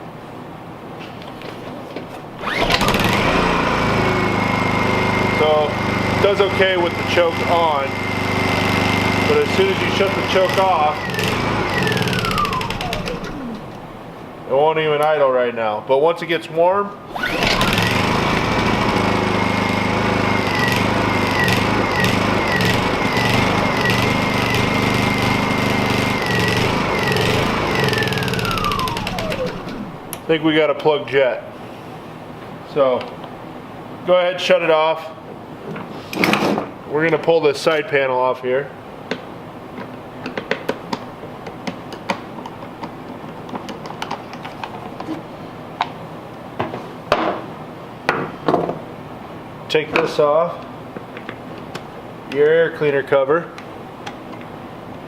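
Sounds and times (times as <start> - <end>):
generator engine running rough: 2.4 - 14.3, 17.1 - 30.3.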